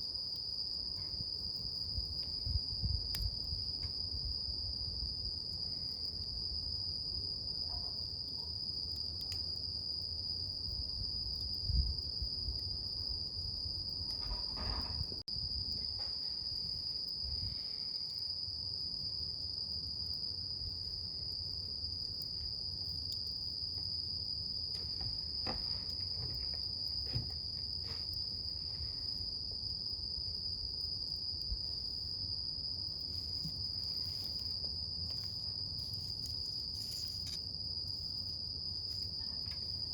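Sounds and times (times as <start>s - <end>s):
crickets trilling: 0.0s - 39.9s
wood fire rumbling and crackling: 0.1s - 39.9s.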